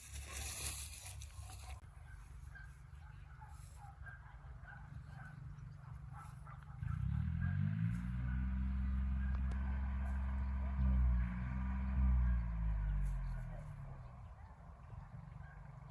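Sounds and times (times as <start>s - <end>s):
engine starting and running: 6.7s - 14.6s.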